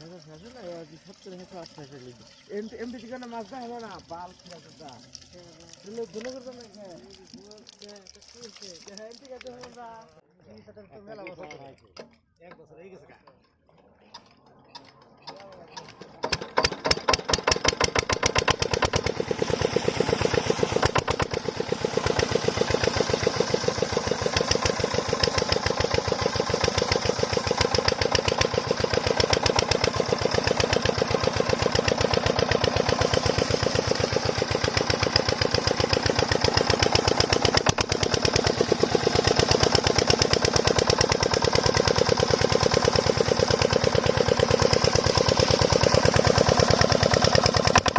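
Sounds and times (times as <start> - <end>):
diesel engine knocking: 15.8 - 47.9.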